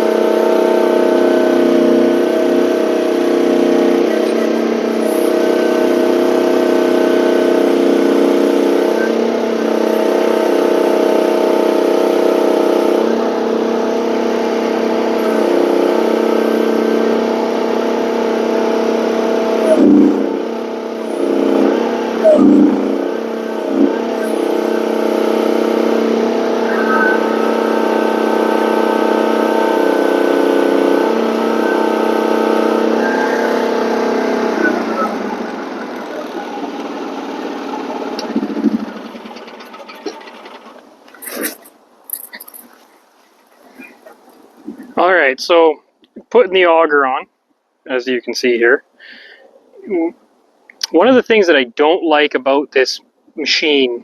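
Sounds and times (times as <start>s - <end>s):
excavator engine running: 0.0s - 47.2s
rake ripping up ground: 39.7s - 44.9s.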